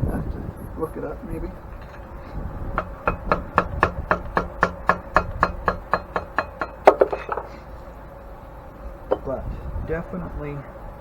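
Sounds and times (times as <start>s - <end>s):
hammer blows on metal: 1.8s - 7.7s.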